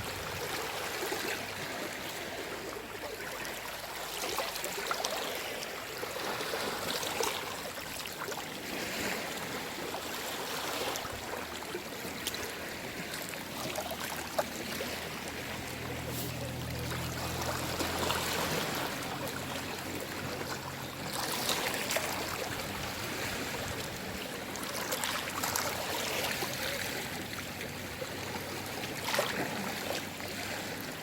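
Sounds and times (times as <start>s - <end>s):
small waves lapping on shore: 0.0s - 31.0s
water trickling and splashing: 0.0s - 31.0s.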